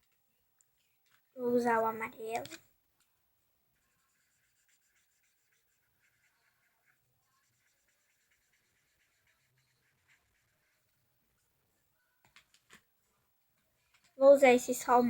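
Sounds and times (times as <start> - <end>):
marker scratching on paper: 3.8 - 11.6.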